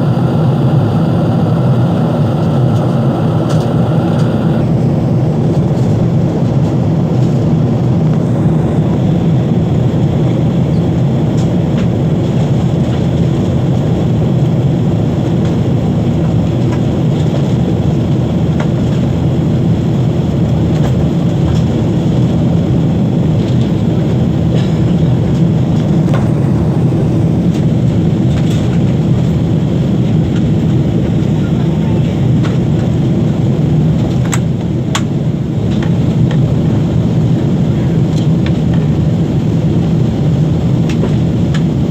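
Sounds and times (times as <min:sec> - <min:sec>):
aircraft cabin engine roar: 0:00.0 - 0:41.9.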